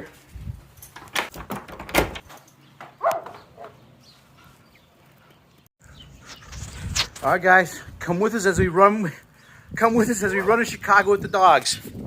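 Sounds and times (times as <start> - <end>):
door opening with clunks: 0.9 - 2.4.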